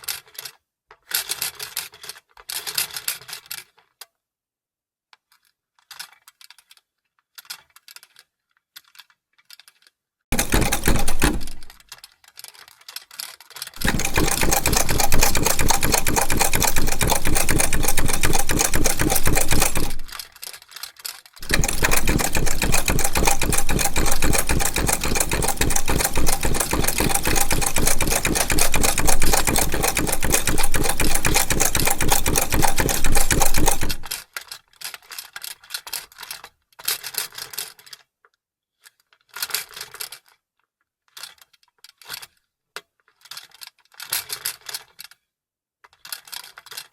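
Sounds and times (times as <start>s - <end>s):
sewing machine clatter: 10.3s - 34.3s.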